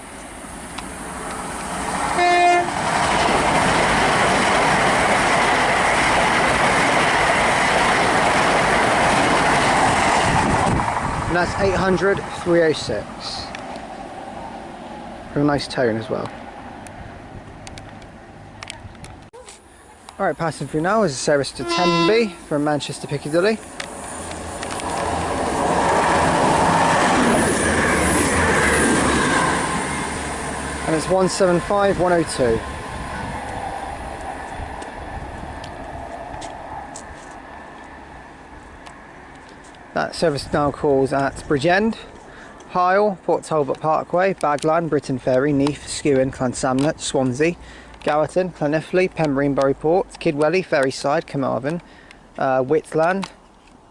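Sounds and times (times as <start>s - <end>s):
train passing at speed: 0.0s - 18.7s, 19.8s - 43.3s
train horn blast: 2.1s - 2.8s, 21.6s - 22.6s
high wheel squeal: 21.6s - 23.5s.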